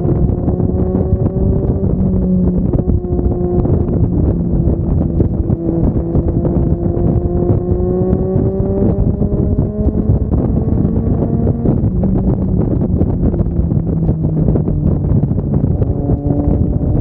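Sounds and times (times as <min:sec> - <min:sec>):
motorcycle engine running: 0:00.0 - 0:17.0
wind buffeting microphone: 0:00.0 - 0:17.0.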